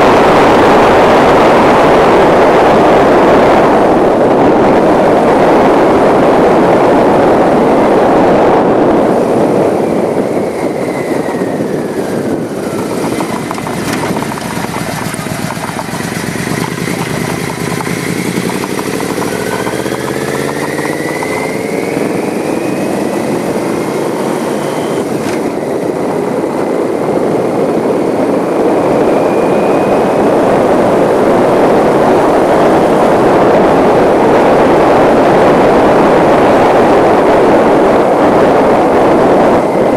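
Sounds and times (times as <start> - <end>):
wind rushing over microphone: 0.0 - 39.9
motor engine rising and falling: 8.6 - 27.8.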